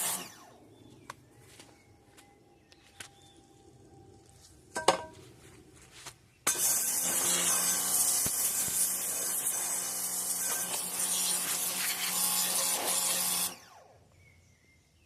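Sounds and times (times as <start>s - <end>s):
power tool grinding: 0.0s - 0.4s, 6.5s - 13.8s.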